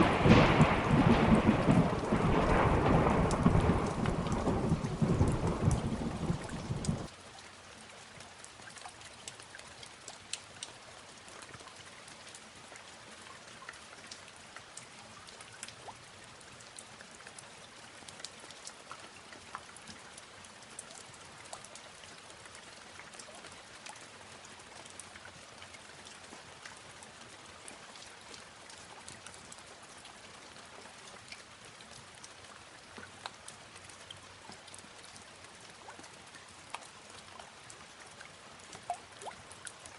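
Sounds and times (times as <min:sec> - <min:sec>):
thunder rumble: 0:00.0 - 0:07.1
steady rain with drop ticks: 0:00.0 - 0:39.9.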